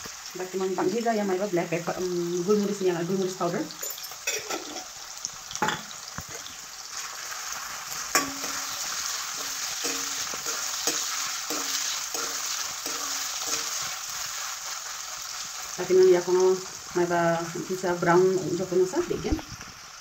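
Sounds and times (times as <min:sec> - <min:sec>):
food sizzling in oil: 0:00.0 - 0:20.0
metal spatula clanking on wok: 0:03.8 - 0:04.9, 0:08.0 - 0:13.9
spatula scraping wok: 0:03.9 - 0:05.2, 0:05.8 - 0:17.0.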